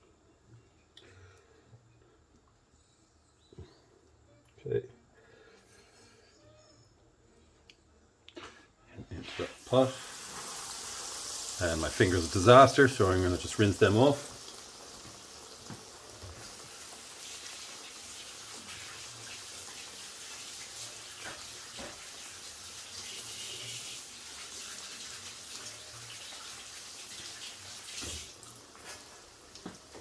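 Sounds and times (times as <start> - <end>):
kitchen tap running: 9.5 - 30.0.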